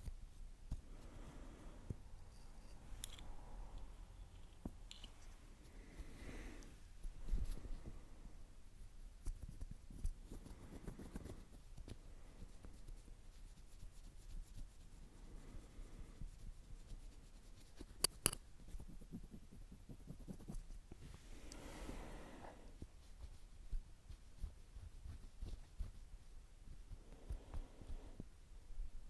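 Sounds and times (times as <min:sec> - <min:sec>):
scratching and rubbing on microphone: 0:09.2 - 0:15.1, 0:16.1 - 0:21.2, 0:22.9 - 0:27.0.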